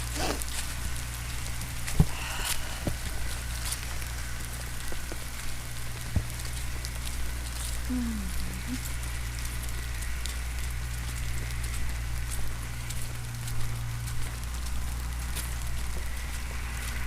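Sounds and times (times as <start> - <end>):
steady rain falling: 0.0 - 17.0
low tone dipping in pitch: 7.9 - 8.8.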